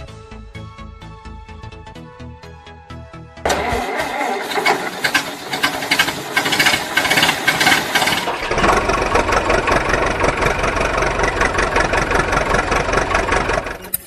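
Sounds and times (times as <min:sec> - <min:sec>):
engine running with chug: 0:03.5 - 0:14.0.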